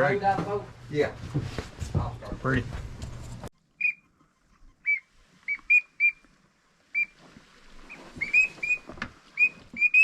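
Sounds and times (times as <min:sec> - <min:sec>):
high whistled calls: 0:03.8 - 0:04.1, 0:04.8 - 0:06.2, 0:06.9 - 0:07.2, 0:07.9 - 0:10.0.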